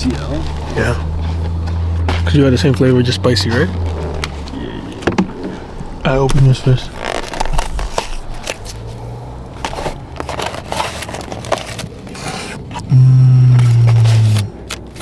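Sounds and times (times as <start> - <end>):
food packaging crinkling: 6.7 - 12.9
loud low hum: 12.9 - 14.5.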